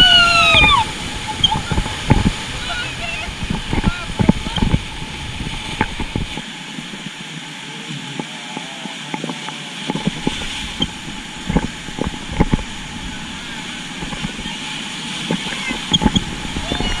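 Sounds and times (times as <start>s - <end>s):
rushing river water: 0.0s - 17.0s
knocks and thumps: 1.4s - 2.4s, 3.4s - 6.4s, 9.9s - 12.7s.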